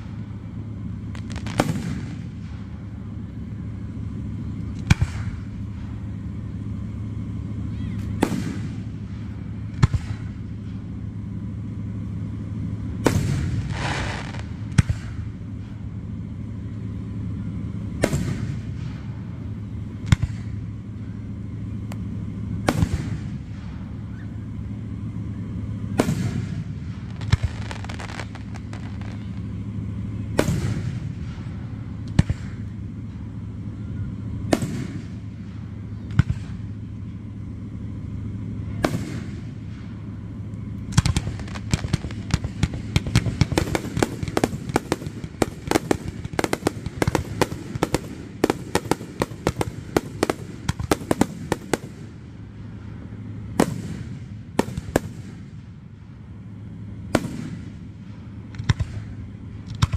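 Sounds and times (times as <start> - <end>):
rapid firework cracks: 0.0 - 3.4, 4.2 - 6.3, 8.1 - 11.0, 12.9 - 15.8, 17.9 - 20.8, 21.9 - 24.0, 25.8 - 33.2, 34.4 - 37.7, 38.8 - 52.7, 53.5 - 55.8, 57.1 - 59.9
firework shells bursting: 1.0 - 2.8, 13.0 - 15.4, 26.0 - 29.8, 40.9 - 52.3.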